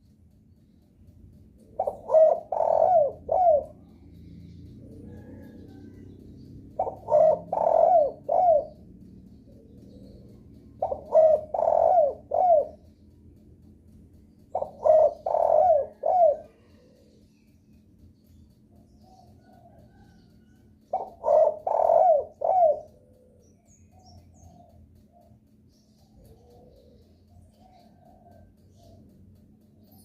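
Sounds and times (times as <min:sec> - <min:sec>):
dove cooing: 0:01.6 - 0:12.9, 0:14.5 - 0:17.3, 0:19.0 - 0:25.3, 0:26.0 - 0:29.2.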